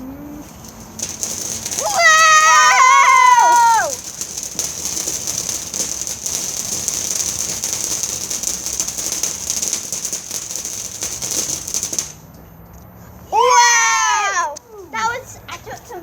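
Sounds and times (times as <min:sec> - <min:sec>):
firework crackling and fizzing: 0:00.3 - 0:12.3.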